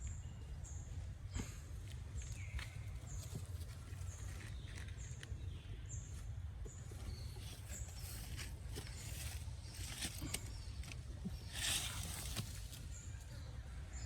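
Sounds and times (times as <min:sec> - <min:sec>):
rustling: 0:06.8 - 0:13.2.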